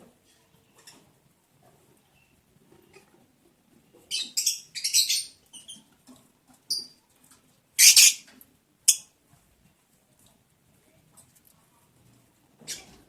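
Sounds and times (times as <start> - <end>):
lovebirds harsh chirps: 7.8 - 8.2.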